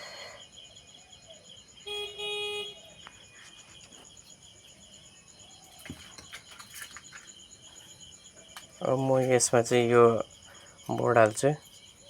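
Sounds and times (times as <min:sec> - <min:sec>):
crickets chirping: 0:00.0 - 0:12.0
horn-like honk: 0:01.9 - 0:02.8.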